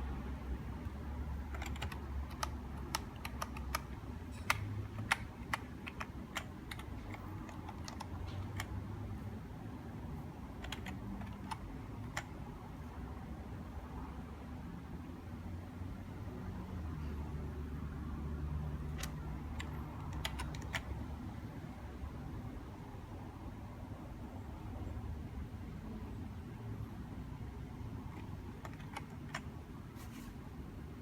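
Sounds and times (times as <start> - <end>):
low steady hum: 0.0 - 31.0
sharp clicks of keys pressed: 0.8 - 8.8, 10.6 - 12.4, 18.9 - 21.0, 28.1 - 29.5.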